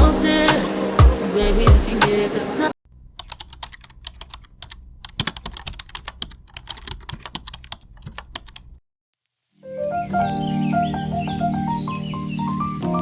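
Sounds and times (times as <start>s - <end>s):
keyboard typing: 3.1s - 8.8s.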